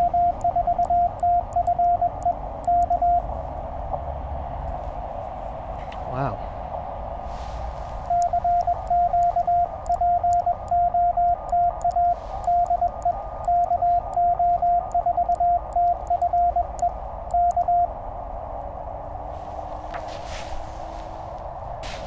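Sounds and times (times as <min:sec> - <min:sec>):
morse code tone: 0:00.0 - 0:03.3, 0:08.0 - 0:17.9
faint clicks: 0:00.3 - 0:03.4, 0:08.1 - 0:10.8, 0:11.4 - 0:17.8.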